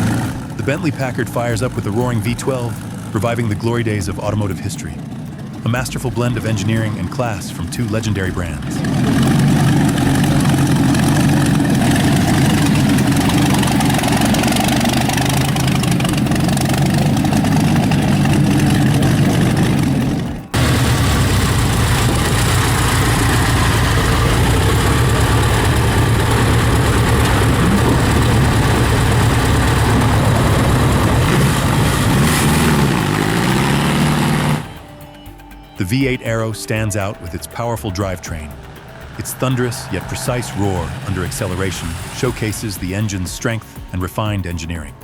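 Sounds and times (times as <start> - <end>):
engine revving: 0.0 - 35.2, 36.3 - 44.1.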